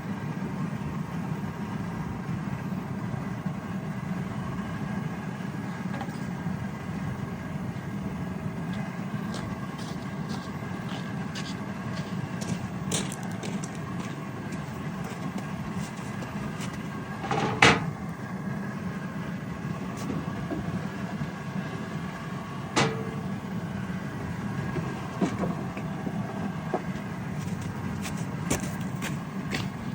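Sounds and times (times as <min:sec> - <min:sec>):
wax tank rumbling: 0:19.5 - 0:29.9.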